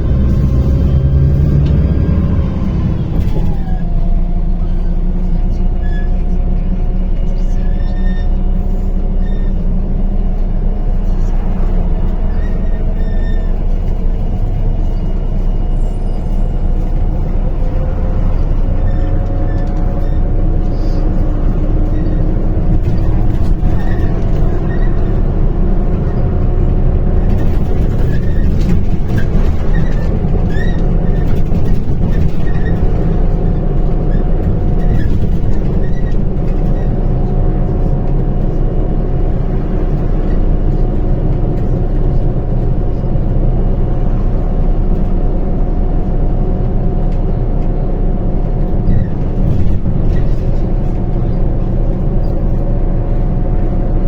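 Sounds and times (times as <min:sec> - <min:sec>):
bus diesel engine: 0:00.0 - 0:54.0
drivetrain whine: 0:00.0 - 0:54.0
road rumble: 0:00.0 - 0:54.0
short squeaks: 0:07.2 - 0:09.8, 0:10.6 - 0:25.3.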